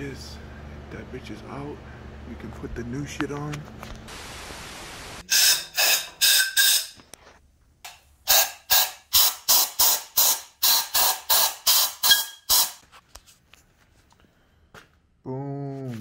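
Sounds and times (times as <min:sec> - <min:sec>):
nozzle hissing in short blasts: 0:05.3 - 0:06.9.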